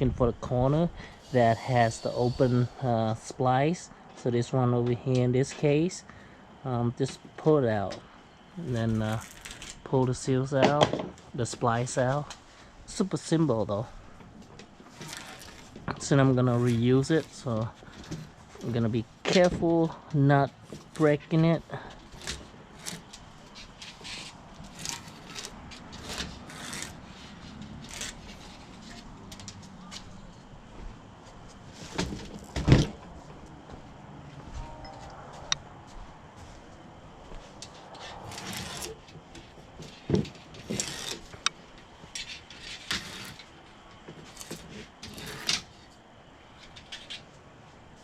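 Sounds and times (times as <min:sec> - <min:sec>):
rubber spline scraping: 0:14.8 - 0:18.9, 0:22.0 - 0:29.5, 0:37.7 - 0:41.5, 0:42.1 - 0:45.9
rubber spline pulled from screen frame: 0:14.9 - 0:15.7, 0:23.8 - 0:29.0, 0:38.1 - 0:39.0.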